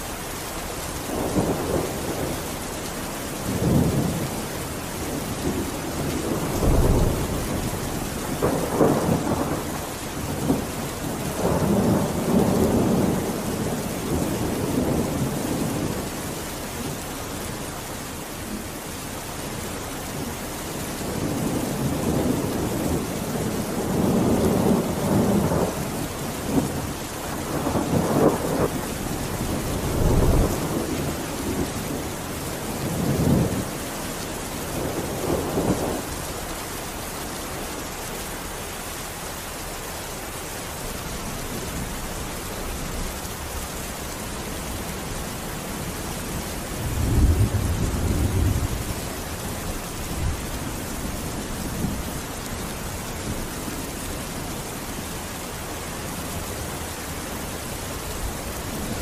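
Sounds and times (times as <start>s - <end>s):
heavy rain: 0.0s - 59.0s
thunder rolling: 5.4s - 10.7s, 46.8s - 49.0s.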